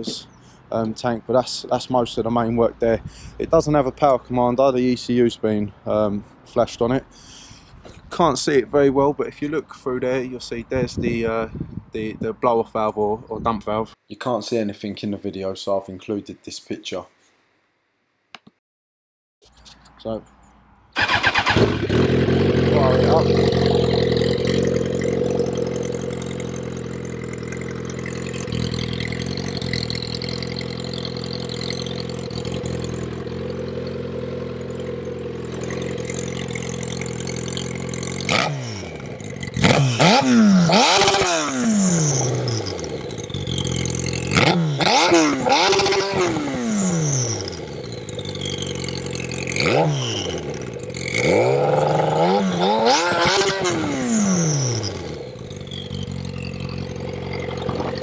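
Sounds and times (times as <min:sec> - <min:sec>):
motorcycle engine idling and revving: 0:00.0 - 0:01.1, 0:20.9 - 0:58.0.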